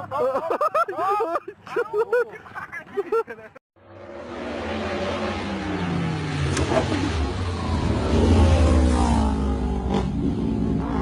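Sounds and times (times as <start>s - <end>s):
vehicle engine revving: 3.8s - 11.0s.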